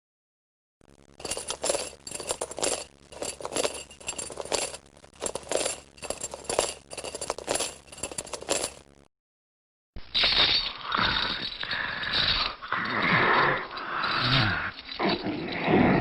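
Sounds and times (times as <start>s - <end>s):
rhythmic metallic clinking: 1.1s - 8.9s.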